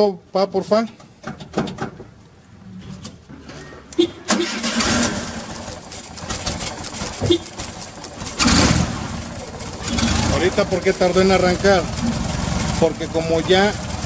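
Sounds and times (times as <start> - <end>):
engine cranking on starter: 4.3 - 14.0
engine running: 4.4 - 14.0.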